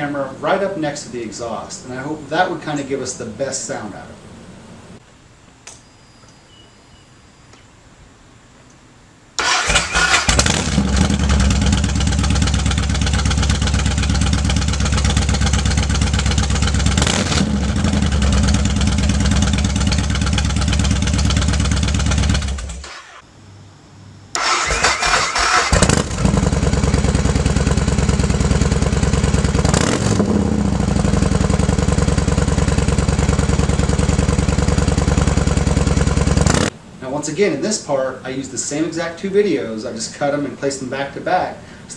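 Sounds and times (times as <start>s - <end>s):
motorcycle starting and idling: 9.4s - 23.2s, 24.3s - 36.7s.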